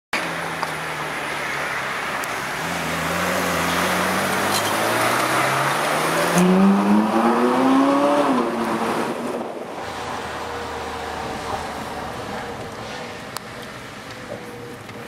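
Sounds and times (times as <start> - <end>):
road and wind rush: 0.2 - 15.0
car engine accelerating: 2.2 - 12.8.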